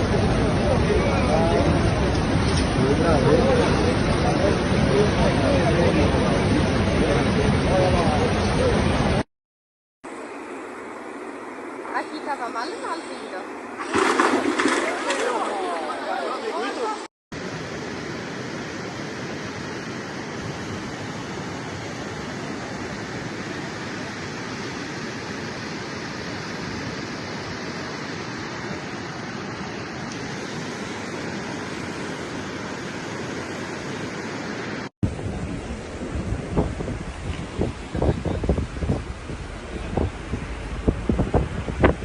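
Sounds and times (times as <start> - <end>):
heavy rainstorm: 0.0 - 9.3, 19.7 - 42.0.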